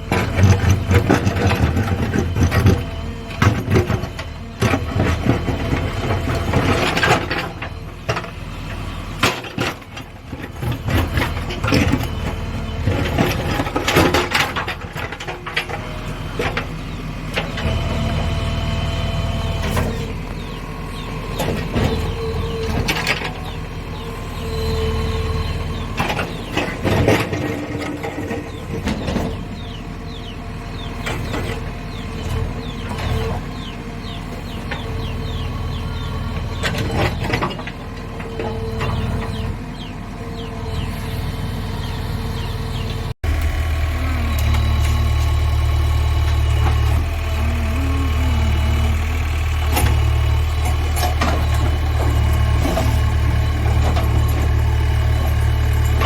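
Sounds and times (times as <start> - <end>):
diesel engine under load: 0.0 - 56.0
hydraulic whine: 43.2 - 56.0.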